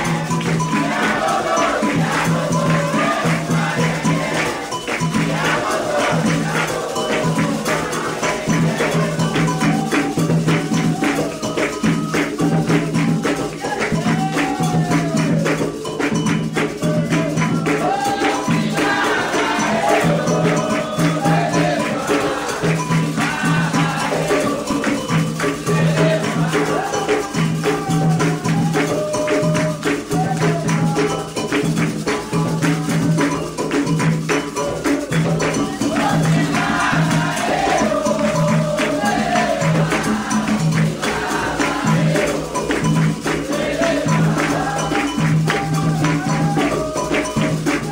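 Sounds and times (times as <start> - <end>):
fast clicking percussion: 0.0 - 47.9
hand drums beating: 0.0 - 47.9
voices singing a chant: 0.0 - 47.9.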